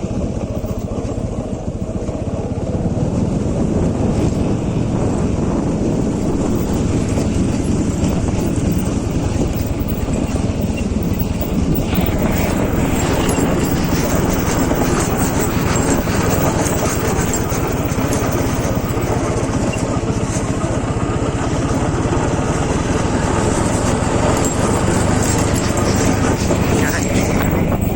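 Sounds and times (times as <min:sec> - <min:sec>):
motorcycle engine running: 0:00.0 - 0:27.9
hiss and rattle: 0:00.4 - 0:01.2, 0:05.6 - 0:19.9, 0:23.0 - 0:27.9.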